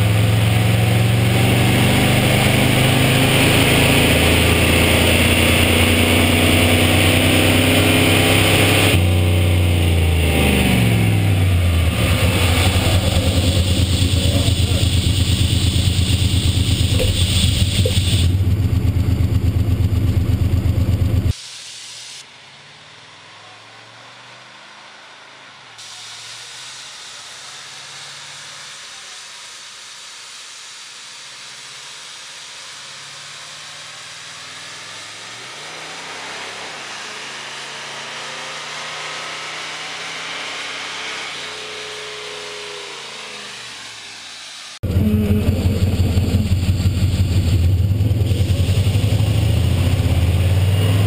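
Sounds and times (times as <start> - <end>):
car engine on dyno: 0.0 - 51.0
steady hiss: 12.1 - 18.4.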